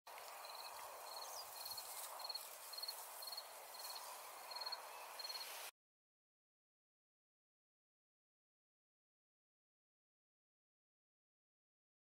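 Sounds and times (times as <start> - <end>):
cricket chirping: 0.4 - 5.5.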